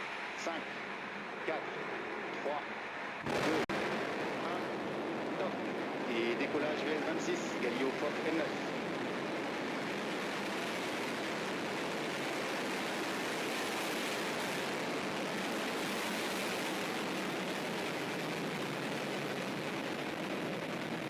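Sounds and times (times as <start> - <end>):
rocket engines rushing: 0.3 - 21.0.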